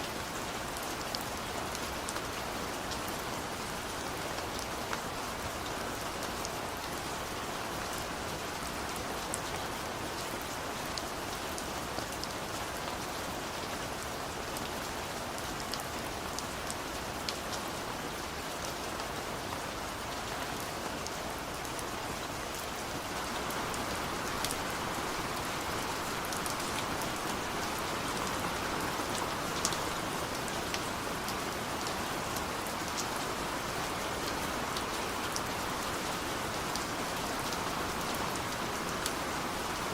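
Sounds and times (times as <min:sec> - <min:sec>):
steady rain hiss: 0:00.0 - 0:39.9
raindrops ticking on surface: 0:20.2 - 0:39.9.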